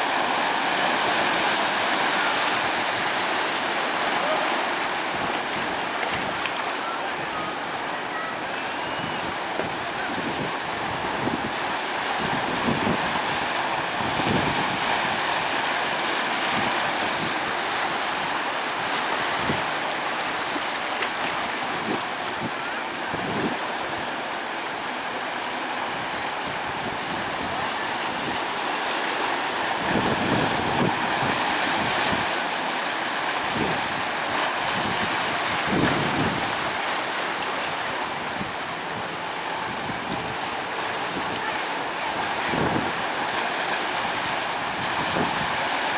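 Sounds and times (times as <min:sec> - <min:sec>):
waves washing onto beach: 0:00.0 - 0:45.9
wind buffeting microphone: 0:44.0 - 0:45.9.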